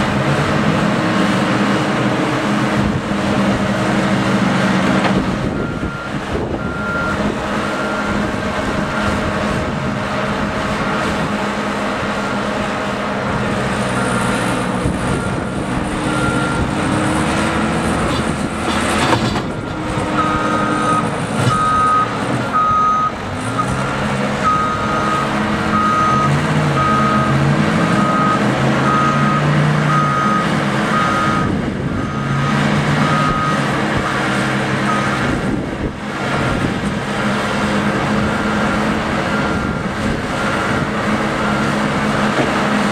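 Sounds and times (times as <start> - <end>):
heavy vehicle engine revving: 0.0 - 42.9
reversing alarm beeps: 5.5 - 8.2, 15.1 - 17.2, 19.6 - 23.8, 24.4 - 34.2, 34.9 - 35.3, 38.3 - 40.8.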